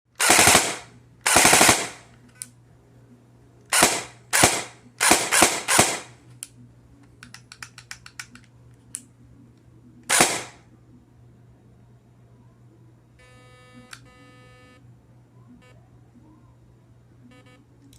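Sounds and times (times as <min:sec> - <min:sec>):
airsoft gun bursts: 0:00.2 - 0:02.1, 0:03.7 - 0:06.2, 0:10.1 - 0:10.6.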